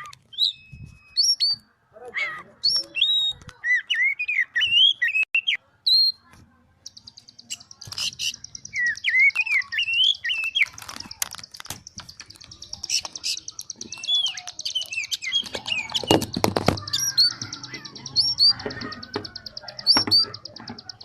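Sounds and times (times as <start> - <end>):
bird whistling song: 0.0 - 1.7, 2.6 - 6.2, 6.8 - 21.0
fast buzzing bird trill: 11.9 - 21.0.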